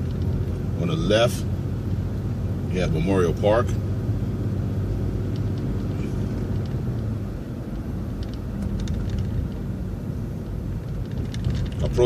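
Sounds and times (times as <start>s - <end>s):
bus engine and road drone: 0.0s - 12.0s
light rattles: 5.2s - 12.0s.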